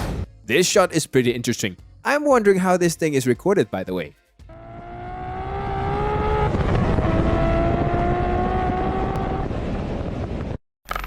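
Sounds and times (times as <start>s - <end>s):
car engine accelerating: 4.5s - 9.9s
wind rush: 5.4s - 10.6s.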